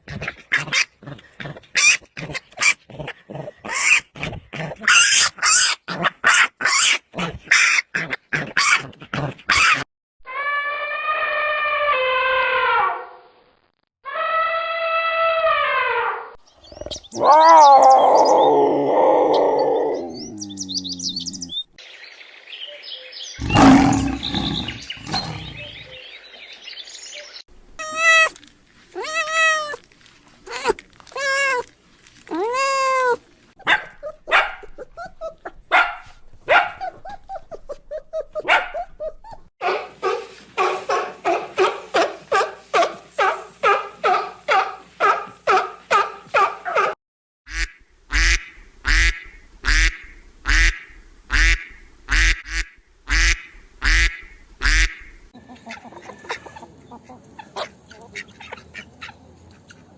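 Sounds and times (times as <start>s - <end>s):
animal calls: 23.4s - 26.0s.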